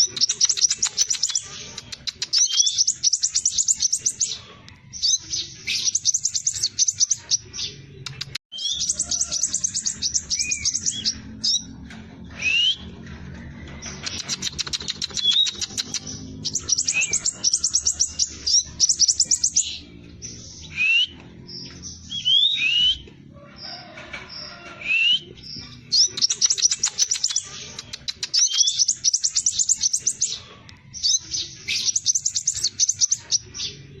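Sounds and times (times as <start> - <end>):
bird singing trills: 0.0 - 34.0.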